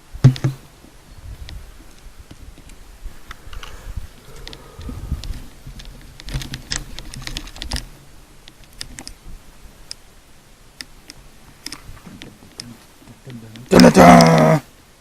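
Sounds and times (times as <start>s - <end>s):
light clicks and taps: 10.8s - 13.8s.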